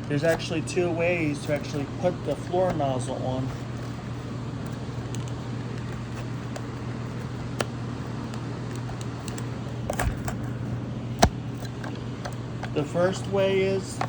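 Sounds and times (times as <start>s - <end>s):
steady low hum: 0.0s - 14.0s
plastic vacuum parts clicking: 1.3s - 4.0s, 4.6s - 6.7s.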